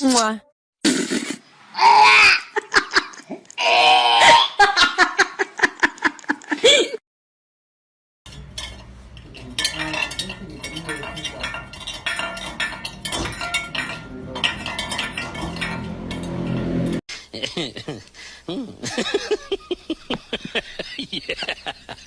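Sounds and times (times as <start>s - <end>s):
hard objects clinking: 8.3s - 17.0s.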